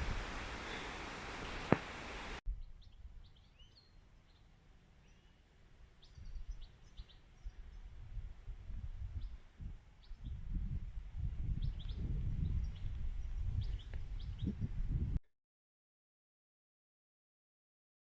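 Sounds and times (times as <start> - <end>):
wind rumble on microphone: 0.0 - 3.4, 6.1 - 15.2
small birds chirping: 0.4 - 8.3, 9.0 - 10.7, 11.4 - 14.7.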